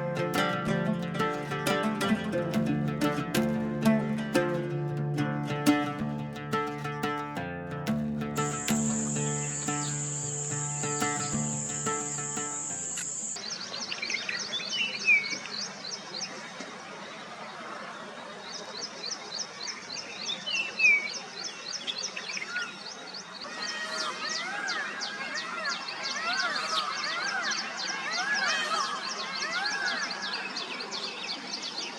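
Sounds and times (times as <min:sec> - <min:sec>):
acoustic guitar music: 0:00.0 - 0:13.4
overlapping bird calls: 0:07.8 - 0:13.4
fast high insect chirping: 0:08.4 - 0:13.4.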